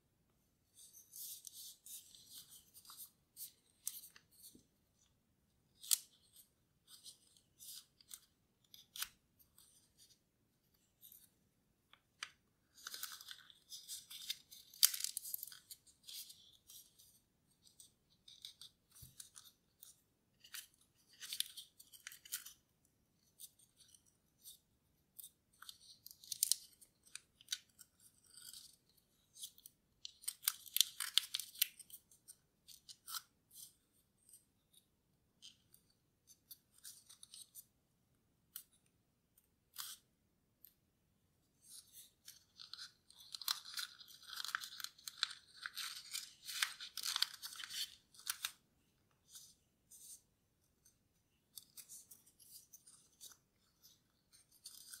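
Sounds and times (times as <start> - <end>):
paper rustling and crinkling: 12.2 - 22.6, 41.6 - 50.2.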